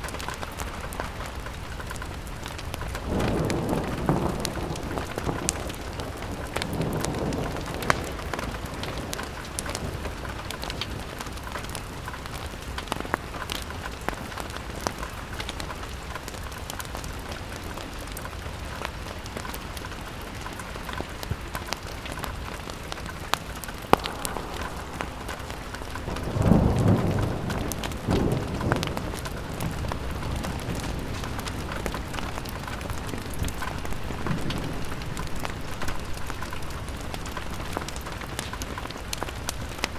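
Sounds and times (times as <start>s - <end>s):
fireplace crackles: 0.0s - 39.9s
rain on a window: 0.0s - 39.9s
low rumble: 23.8s - 28.1s.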